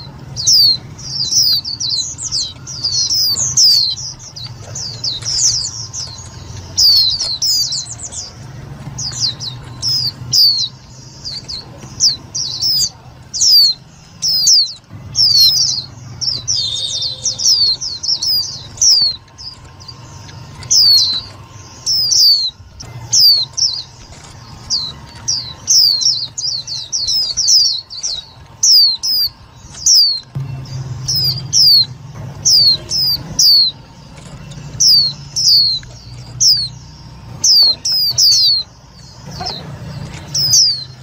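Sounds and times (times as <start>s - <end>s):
bird calling high notes: 0.0s - 41.0s.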